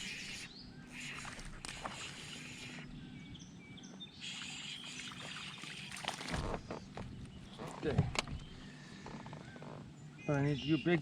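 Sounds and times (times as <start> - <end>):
water sloshing around kayak: 4.2 - 9.6.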